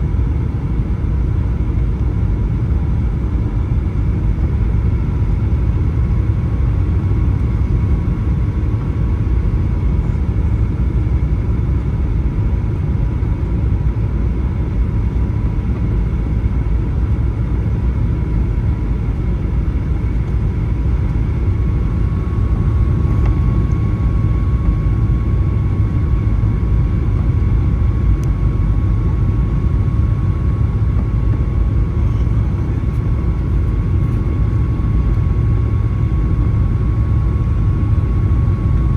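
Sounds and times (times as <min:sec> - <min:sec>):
jet engine and airflow rumble: 0:00.0 - 0:38.9
thin steady whine: 0:15.1 - 0:38.9.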